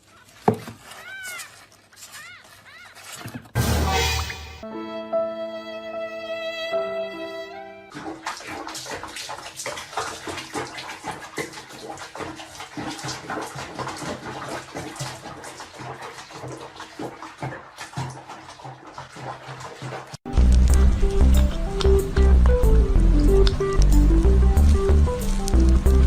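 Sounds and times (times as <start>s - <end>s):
water splashing and running: 0.0s - 4.6s, 7.9s - 26.0s
music: 3.6s - 7.9s, 20.3s - 26.0s.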